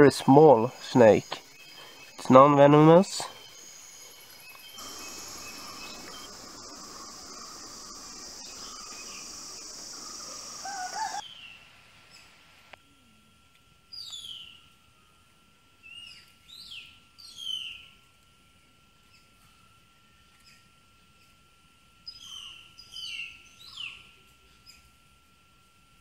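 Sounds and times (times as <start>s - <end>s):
faint steady high tone: 0.0s - 11.6s
bird whistled calls gliding down: 0.3s - 11.4s.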